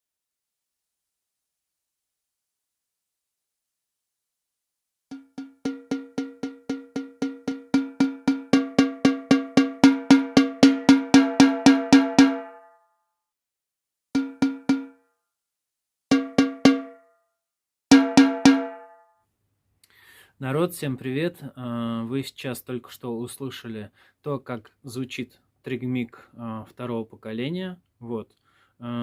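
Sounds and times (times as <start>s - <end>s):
electronic snare drum hits: 5.1s - 12.6s, 14.2s - 14.9s, 16.1s - 17.0s, 17.9s - 18.9s.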